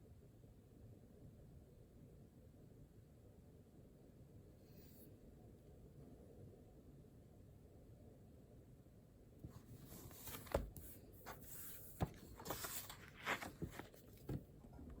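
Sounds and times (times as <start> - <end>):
rustling: 9.5 - 14.5.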